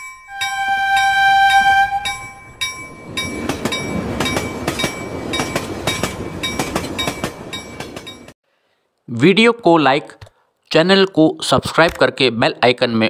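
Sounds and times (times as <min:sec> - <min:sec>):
train horn blast: 0:00.3 - 0:02.4
train wheels clacking over rail joints: 0:02.6 - 0:08.3.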